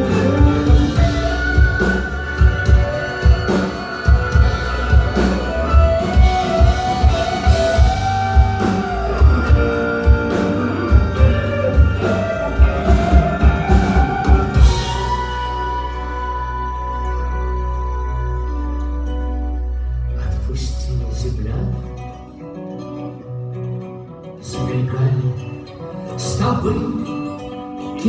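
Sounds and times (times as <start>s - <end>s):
rock band playing live: 0.0s - 20.1s.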